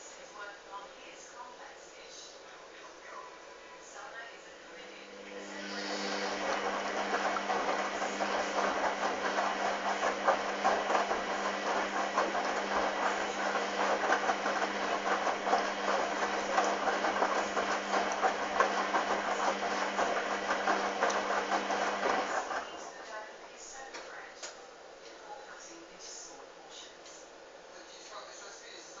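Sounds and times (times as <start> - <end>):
washing machine motor hum: 4.5 - 23.4.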